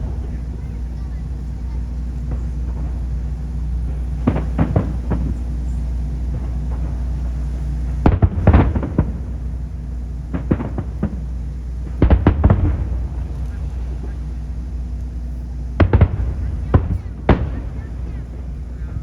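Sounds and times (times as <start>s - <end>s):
fireworks bursting with sharp bangs: 0.0s - 19.0s
steady low rumble: 0.0s - 19.0s.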